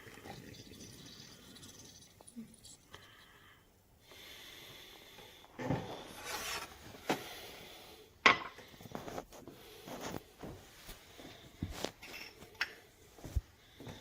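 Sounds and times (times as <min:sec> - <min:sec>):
objects rubbing and scraping: 0:05.6 - 0:07.1.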